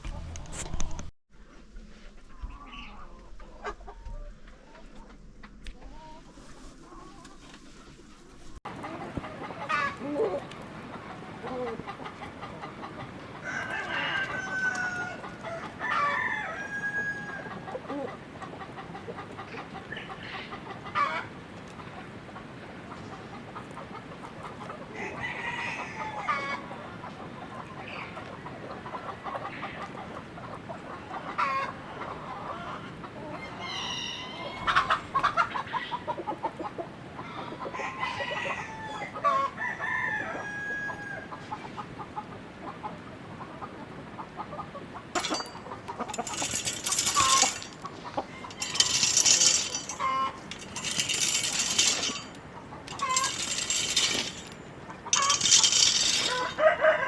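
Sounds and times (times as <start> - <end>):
rustling and scratching noise: 0.0 - 10.7, 45.2 - 56.6
chickens clucking: 2.2 - 57.0
rooster crowing: 13.4 - 17.5, 37.7 - 41.3, 55.1 - 57.0.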